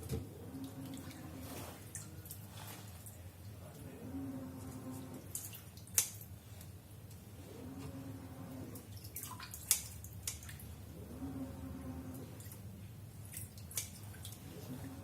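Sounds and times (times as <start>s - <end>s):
water dripping: 8.8s - 10.7s.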